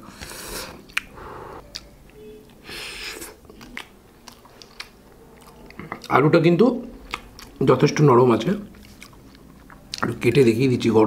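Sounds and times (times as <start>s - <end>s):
breathy rushes: 0.3s - 1.7s
man chewing: 3.0s - 6.1s, 7.0s - 7.6s, 8.7s - 10.0s.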